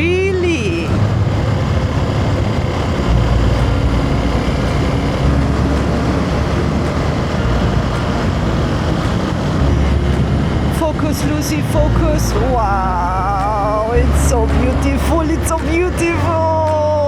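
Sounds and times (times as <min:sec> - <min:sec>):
low rumble of riding noise: 0:00.0 - 0:17.0
motorcycle engine running: 0:00.0 - 0:17.0.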